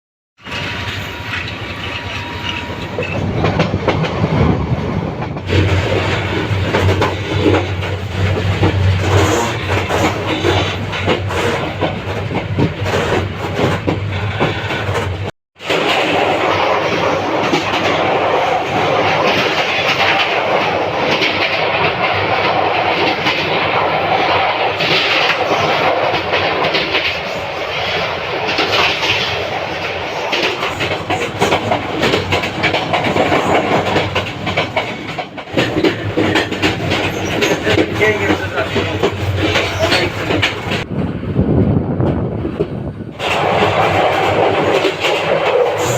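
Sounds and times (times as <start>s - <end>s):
train rumble: 0.4s - 45.9s
train wheels clattering over track: 0.4s - 45.9s.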